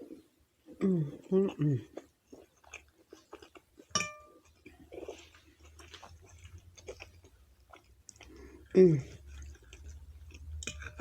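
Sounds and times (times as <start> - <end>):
wet chewing: 0.0 - 11.0
clink against a dish: 4.0 - 4.3.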